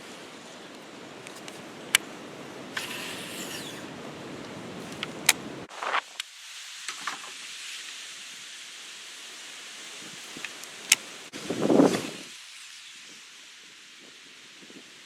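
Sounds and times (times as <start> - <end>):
short whir: 2.7 - 4.0
sharp clicks: 2.8 - 6.0
wind buffeting microphone: 11.4 - 12.3.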